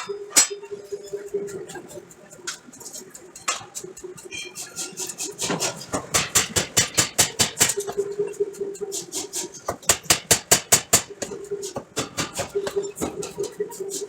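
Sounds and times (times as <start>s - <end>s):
steady machine hum: 0.0s - 14.0s
forging hammer striking steel: 5.4s - 8.0s, 9.7s - 11.3s.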